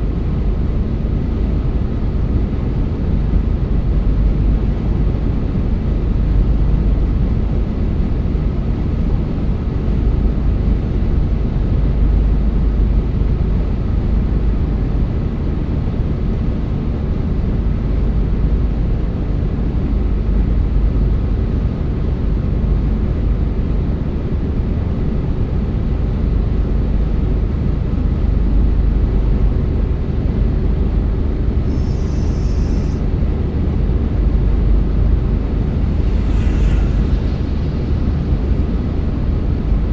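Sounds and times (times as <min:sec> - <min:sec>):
brief high hiss: 0:31.7 - 0:33.1, 0:35.4 - 0:38.8.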